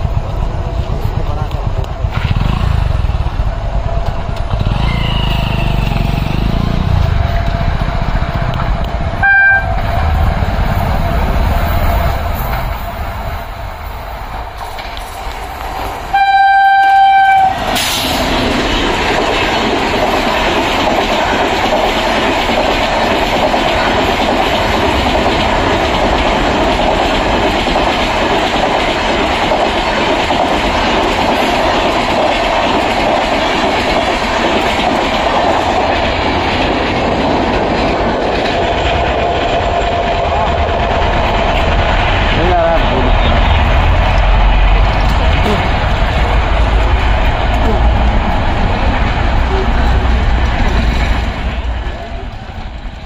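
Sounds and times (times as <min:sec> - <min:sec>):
train passing with wheel clatter: 0:00.0 - 0:53.0
locomotive air horn blast: 0:09.2 - 0:09.9, 0:16.1 - 0:18.0.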